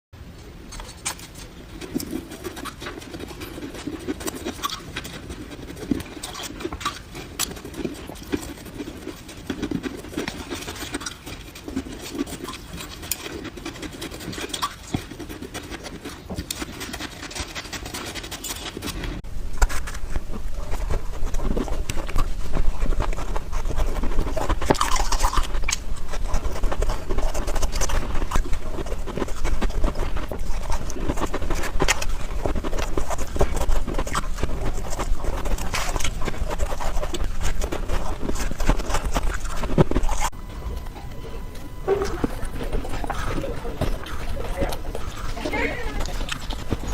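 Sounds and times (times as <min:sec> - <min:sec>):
ice crunching sped up: 0:00.8 - 0:40.3, 0:41.9 - 0:46.9.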